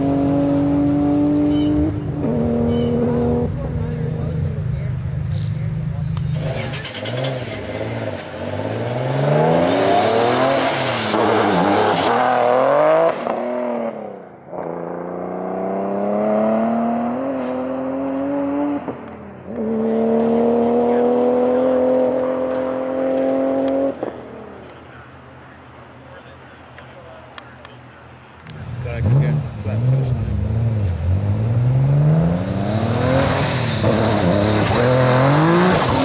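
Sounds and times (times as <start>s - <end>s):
car engine revving hard: 6.4s - 24.1s, 28.9s - 36.0s.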